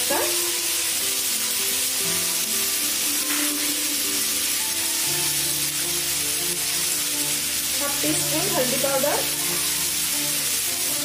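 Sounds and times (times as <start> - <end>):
background music: 0.0 - 11.0
food sizzling in oil: 0.0 - 11.0.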